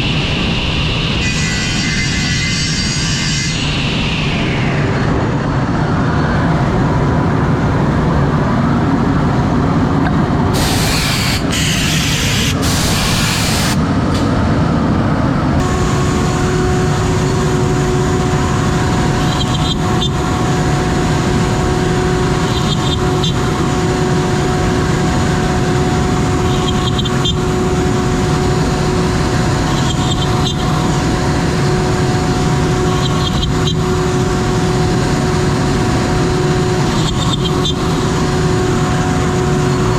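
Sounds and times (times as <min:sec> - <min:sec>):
steady machine whine: 0:00.0 - 0:39.9
cnc router milling wood: 0:00.1 - 0:05.2, 0:10.5 - 0:14.3, 0:15.6 - 0:39.9
loud hiss: 0:10.5 - 0:13.8.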